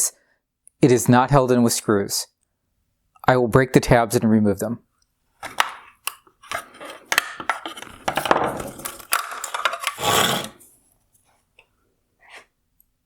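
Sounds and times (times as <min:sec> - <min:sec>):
hard plastic cracking: 0:05.4 - 0:10.6
rattling scrape: 0:08.6 - 0:10.6.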